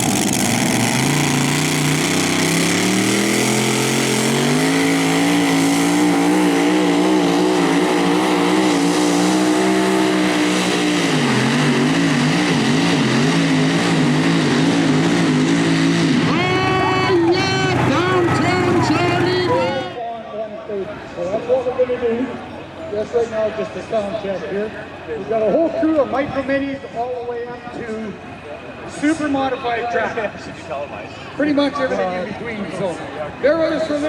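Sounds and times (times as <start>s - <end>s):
tractor engine at full throttle: 0.0s - 20.0s.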